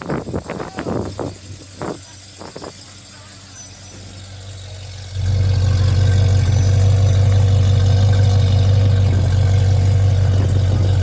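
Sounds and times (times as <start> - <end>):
car engine running: 2.8 - 11.0.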